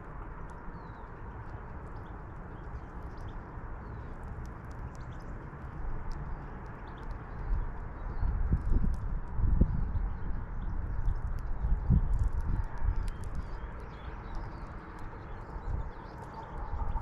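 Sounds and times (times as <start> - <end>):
wind on microphone: 7.3 - 17.0.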